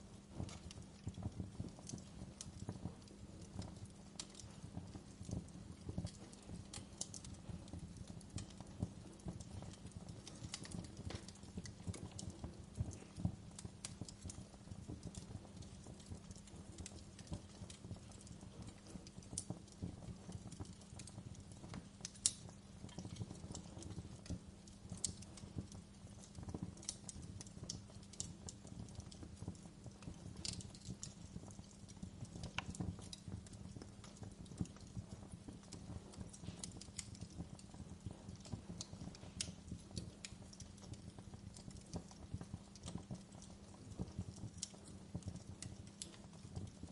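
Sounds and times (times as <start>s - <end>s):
wood fire crackling: 0.0s - 46.9s
sharp pops and snaps: 0.2s - 46.9s.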